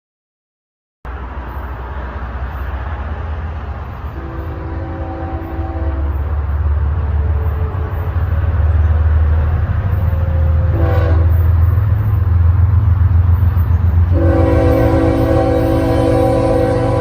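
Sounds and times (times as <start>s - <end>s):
low rumble of train: 1.1s - 17.0s
locomotive air horn blasts: 4.2s - 6.2s, 10.7s - 11.5s, 14.1s - 17.0s.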